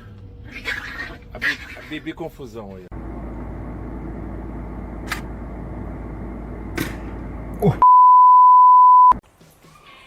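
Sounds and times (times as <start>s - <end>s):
censor bleep: 7.8s - 9.2s.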